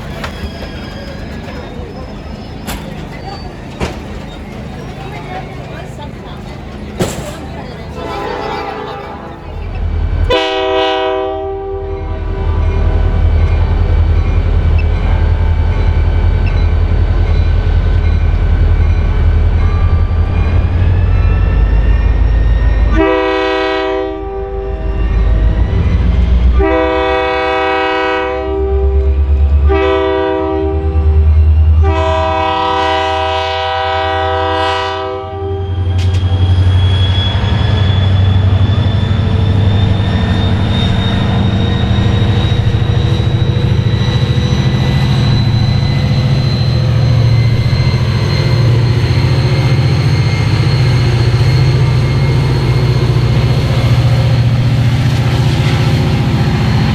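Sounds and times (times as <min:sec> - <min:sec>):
locomotive engine running: 0:00.0 - 0:11.0, 0:11.9 - 0:29.8, 0:35.6 - 0:56.9
locomotive air horn blasts: 0:07.9 - 0:09.7, 0:10.3 - 0:12.7, 0:22.9 - 0:24.8, 0:26.5 - 0:31.0, 0:31.8 - 0:36.0.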